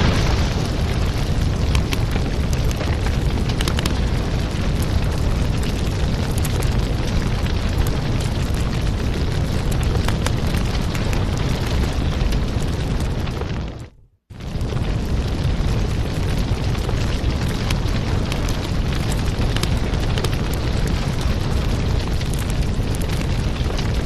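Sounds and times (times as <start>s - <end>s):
heavy low hiss: 0.0s - 2.8s
wood fire crackling: 0.0s - 24.0s.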